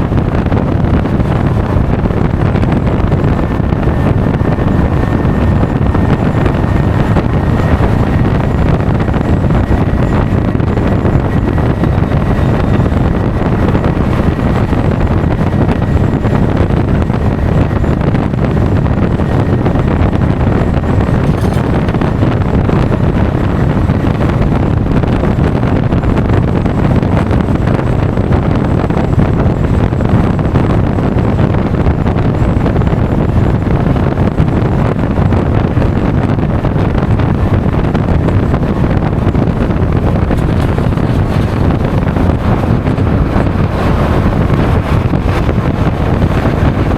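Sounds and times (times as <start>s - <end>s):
wind rush on microphone: 0.0s - 46.9s
scooter engine running: 20.4s - 24.4s, 37.4s - 46.9s.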